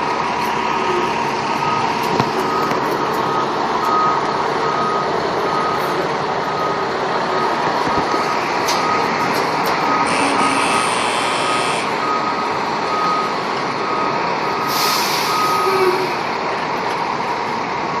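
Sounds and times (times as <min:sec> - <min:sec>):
diesel engine running: 0:00.0 - 0:18.0
reversing alarm beeping: 0:00.8 - 0:16.1
air brakes hissing: 0:14.6 - 0:16.1.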